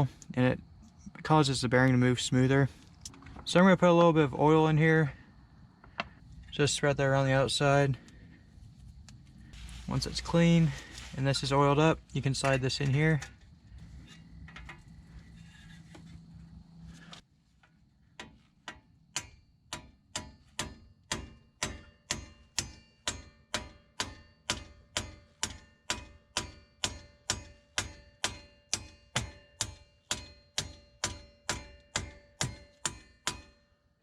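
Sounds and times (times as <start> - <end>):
hammer tapping metal plate: 18.2 - 33.7.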